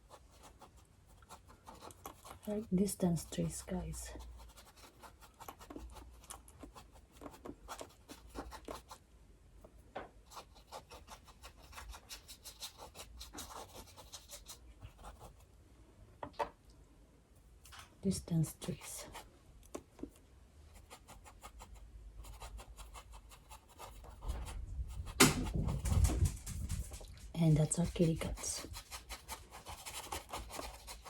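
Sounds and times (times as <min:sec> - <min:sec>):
paintbrush scrubbing on canvas: 0:00.0 - 0:09.0, 0:10.3 - 0:15.5, 0:20.7 - 0:31.0.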